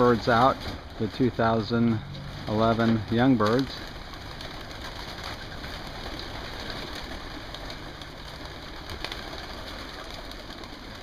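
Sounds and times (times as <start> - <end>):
steady background noise: 0.0 - 11.0
pigeon cooing: 3.7 - 11.0.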